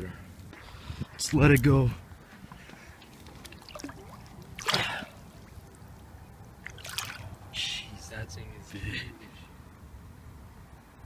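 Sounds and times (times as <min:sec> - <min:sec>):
water splashing and dribbling: 0:02.5 - 0:07.6.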